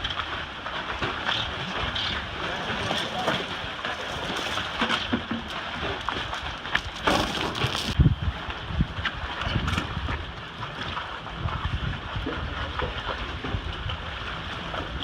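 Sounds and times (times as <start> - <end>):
choppy water: 0.0 - 15.0
wind buffeting microphone: 5.8 - 15.0.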